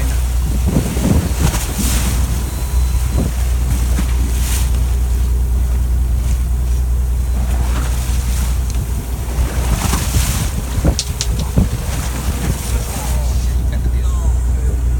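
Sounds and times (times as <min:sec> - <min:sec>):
boat engine rumbling: 0:00.0 - 0:14.9
water noise: 0:00.0 - 0:14.9
wind: 0:00.0 - 0:14.9
sharp clicks: 0:10.9 - 0:11.6.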